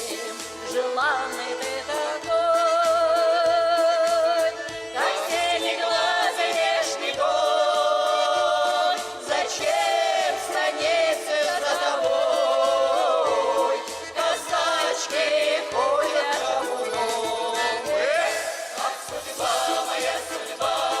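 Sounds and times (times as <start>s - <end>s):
group singing folk song: 0.0s - 21.0s.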